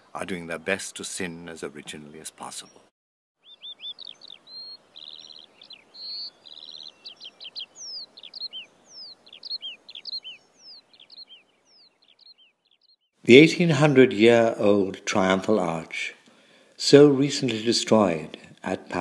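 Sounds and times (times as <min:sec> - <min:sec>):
faint steady hiss: 0:00.0 - 0:02.8, 0:13.2 - 0:19.0
songbirds singing: 0:01.3 - 0:13.2.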